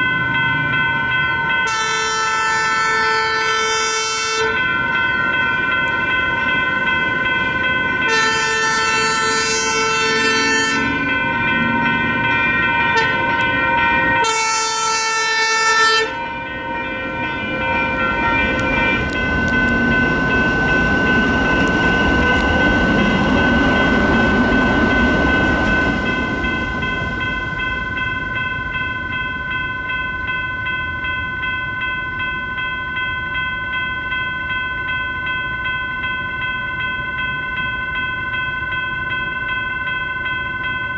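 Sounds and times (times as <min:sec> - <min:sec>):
electronic crossing bell ringing: 0:00.0 - 0:40.9
train rumbling through crossing: 0:00.0 - 0:40.9
train horn: 0:01.6 - 0:04.7, 0:08.1 - 0:11.1, 0:12.8 - 0:13.5, 0:14.1 - 0:16.6.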